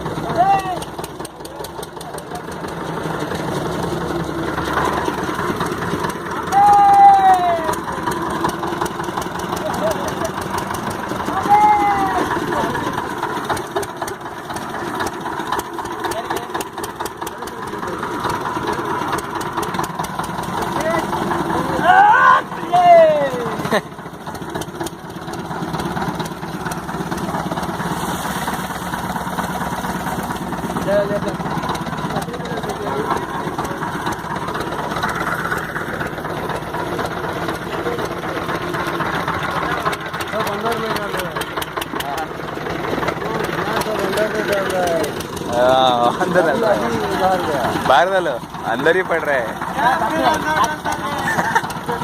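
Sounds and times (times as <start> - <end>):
boat engine running: 0.0 - 52.0.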